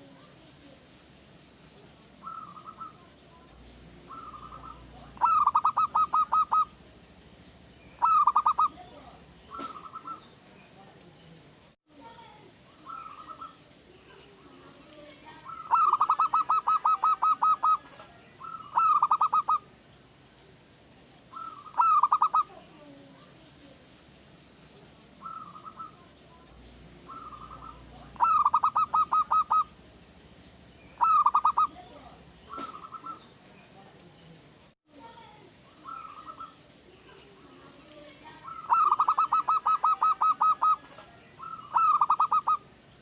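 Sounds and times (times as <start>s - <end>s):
soft bird calls: 0.0s - 11.4s, 12.7s - 20.6s, 21.2s - 34.4s, 35.6s - 43.0s
dove cooing: 2.2s - 3.1s, 3.8s - 6.8s, 8.0s - 10.3s, 12.8s - 13.7s, 15.3s - 19.7s, 21.3s - 23.4s, 25.2s - 29.9s, 31.0s - 33.3s, 35.7s - 42.7s.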